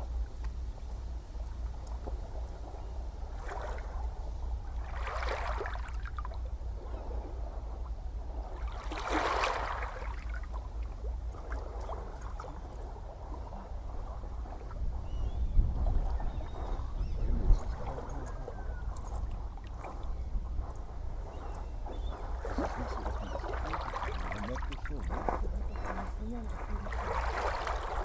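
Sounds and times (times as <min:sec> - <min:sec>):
ocean waves washing ashore: 0:00.8 - 0:28.0.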